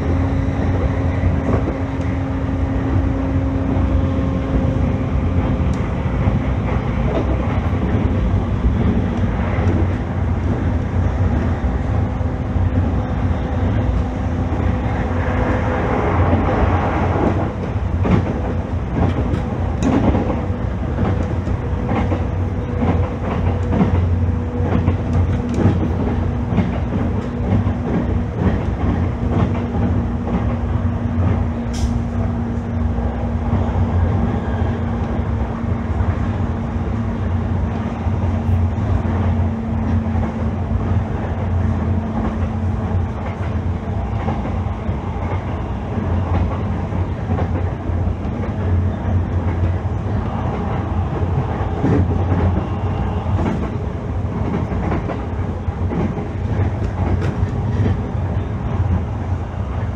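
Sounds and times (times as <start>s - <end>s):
train hum: 0.0s - 59.9s
train wheels rumbling on rail: 0.0s - 59.9s.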